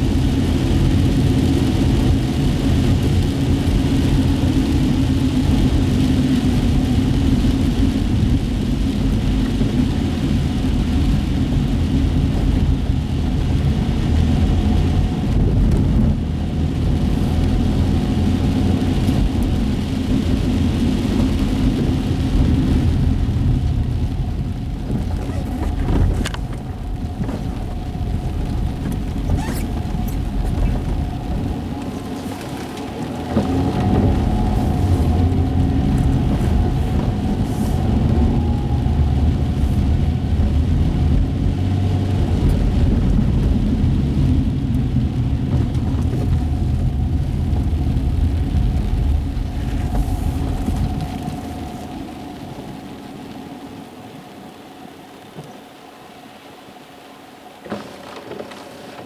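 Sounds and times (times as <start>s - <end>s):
engine and tyre rumble: 0.0s - 59.0s
tyre hiss on wet road: 34.4s - 38.2s, 49.6s - 55.7s.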